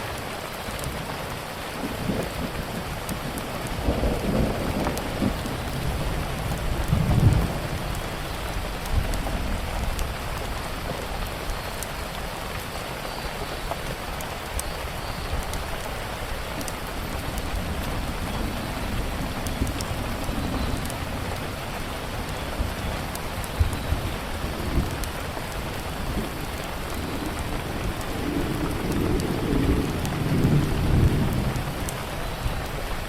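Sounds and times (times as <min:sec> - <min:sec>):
steady rain falling: 0:00.0 - 0:33.0
wood fire crackling: 0:00.0 - 0:33.0
low rumble of thunder: 0:01.8 - 0:11.6, 0:16.6 - 0:33.0.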